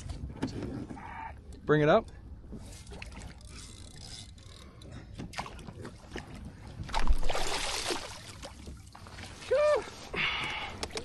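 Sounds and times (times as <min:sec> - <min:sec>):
water splashing: 0:05.3 - 0:10.1.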